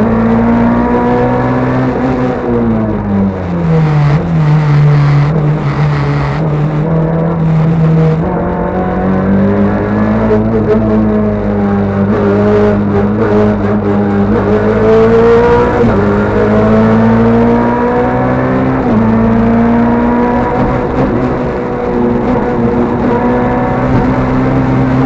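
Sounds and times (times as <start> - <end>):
rally car engine accelerating: 0.0 - 25.0.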